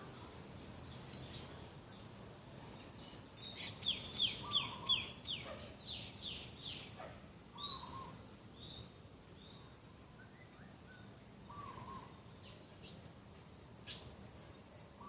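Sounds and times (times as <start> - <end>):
faint outdoor background: 0.0 - 15.0
short lower bird calls: 3.6 - 6.9, 7.6 - 8.2, 10.6 - 12.2.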